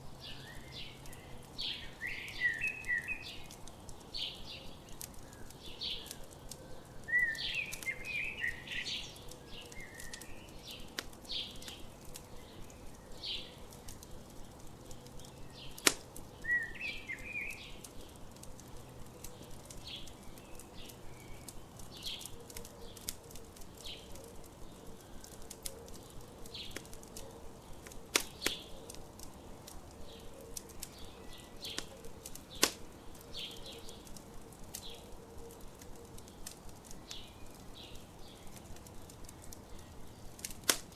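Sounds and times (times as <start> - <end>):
campfire crackling and popping: 0.0 - 40.9
songbirds chirping: 0.0 - 40.9.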